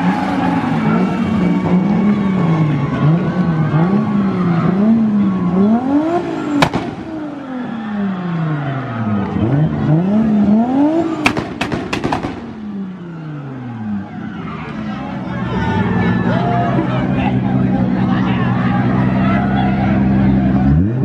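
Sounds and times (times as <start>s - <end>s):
car engine revving: 0.0s - 21.0s
exhaust backfire bangs: 6.2s - 7.9s, 11.2s - 13.2s.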